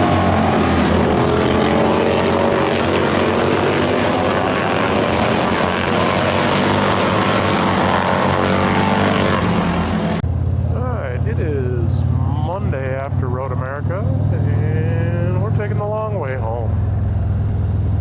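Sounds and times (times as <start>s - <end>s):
motorcycle engine running: 9.5s - 16.1s.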